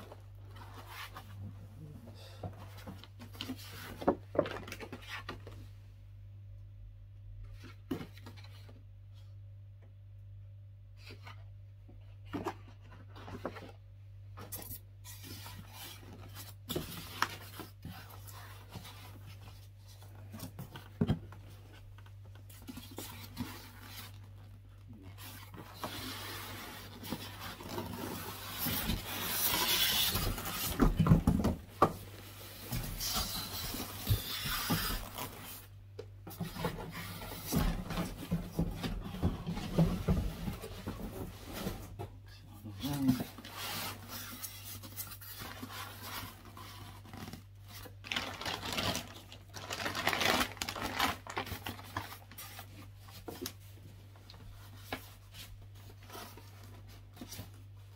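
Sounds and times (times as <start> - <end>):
packaging rustling: 45.1 - 52.9.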